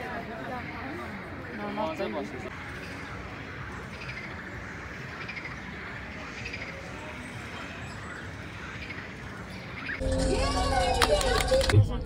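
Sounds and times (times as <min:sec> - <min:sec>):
birds chirping: 0:00.0 - 0:11.3
outdoor background noise: 0:00.0 - 0:12.0.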